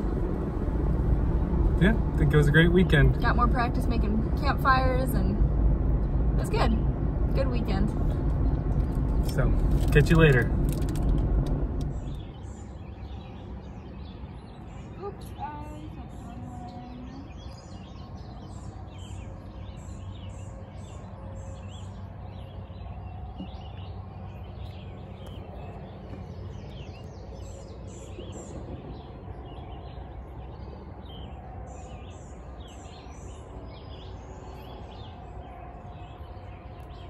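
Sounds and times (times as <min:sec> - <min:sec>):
steady low rumble: 0:00.0 - 0:37.0
birds chirping and singing: 0:11.9 - 0:37.0.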